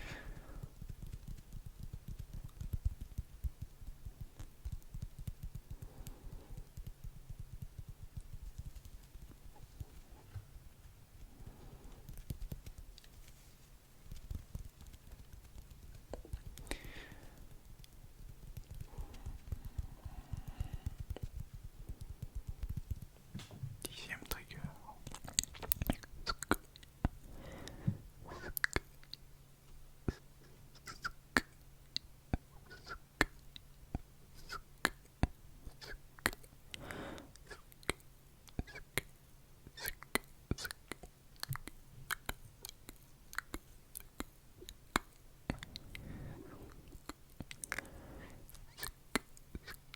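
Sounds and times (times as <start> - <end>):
soft clicks and taps: 0.2 - 28.0.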